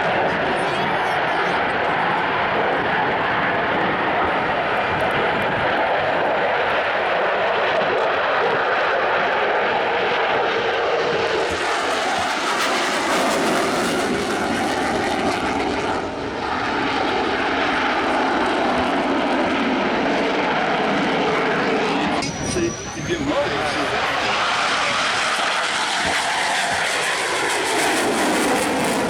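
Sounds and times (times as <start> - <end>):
aircraft engine running: 0.0 - 29.0.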